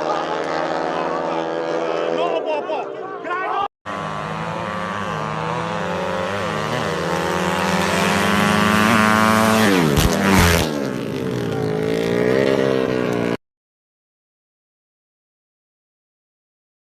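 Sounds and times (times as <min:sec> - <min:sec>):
engine running: 0:00.0 - 0:13.4.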